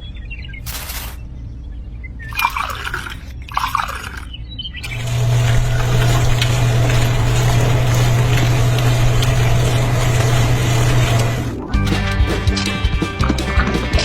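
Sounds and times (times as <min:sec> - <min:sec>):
small motor humming: 0:04.8 - 0:11.6.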